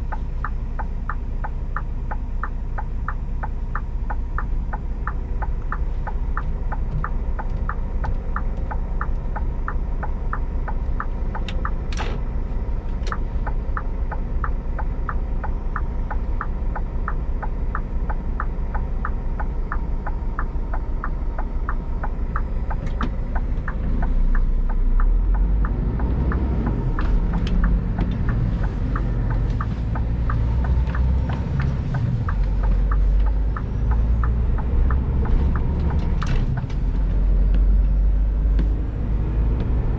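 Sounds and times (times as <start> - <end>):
regular ticking clicks: 0.0 - 38.9
truck diesel engine running: 0.0 - 39.9.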